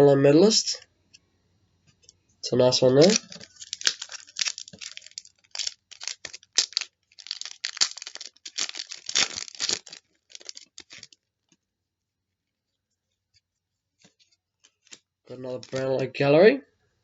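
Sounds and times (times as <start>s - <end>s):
wrapper crinkling and tearing: 3.0s - 11.2s, 14.6s - 16.0s.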